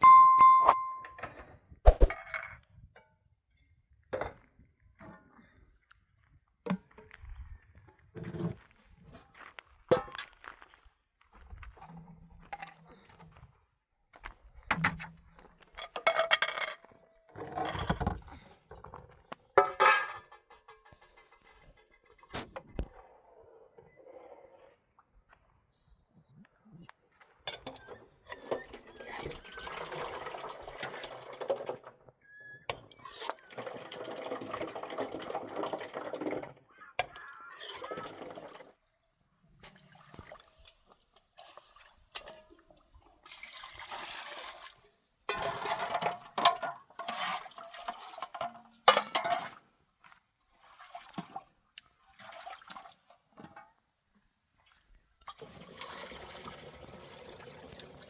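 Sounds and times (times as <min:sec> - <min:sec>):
water splashing and pouring: 0:28.8 - 0:32.1, 0:33.0 - 0:36.7, 0:37.6 - 0:49.8, 0:50.4 - 0:53.4, 0:54.6 - 0:58.0.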